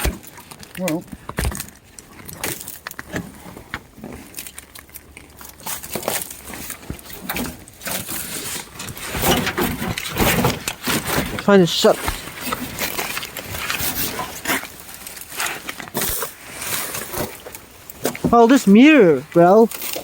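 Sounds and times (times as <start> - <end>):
crackling: 0.0 - 20.0.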